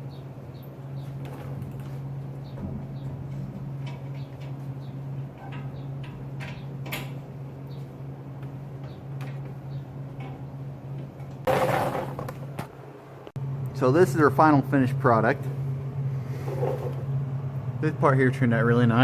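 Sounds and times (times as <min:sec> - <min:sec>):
steady low hum: 0:00.0 - 0:19.0
metal clank: 0:01.2 - 0:04.6
metal tools clicking and tapping: 0:05.3 - 0:07.2.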